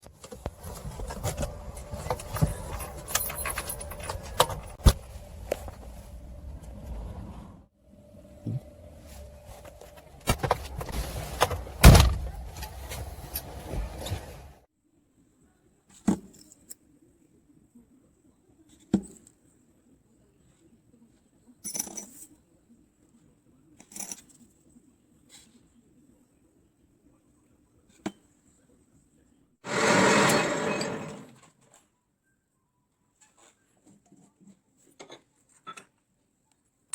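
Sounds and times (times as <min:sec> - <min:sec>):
small metal parts clinking: 0:02.6 - 0:04.8
metallic scrape: 0:29.7 - 0:31.4.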